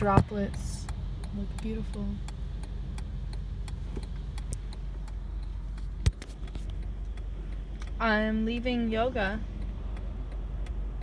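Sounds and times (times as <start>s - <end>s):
car rumbling on road: 0.0s - 11.0s
raindrops ticking on car: 0.0s - 11.0s.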